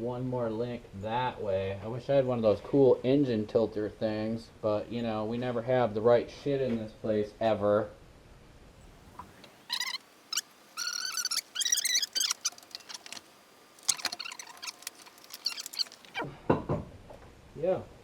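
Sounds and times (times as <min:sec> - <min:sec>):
metal hoist squeaking: 0:09.7 - 0:13.2, 0:13.8 - 0:16.2.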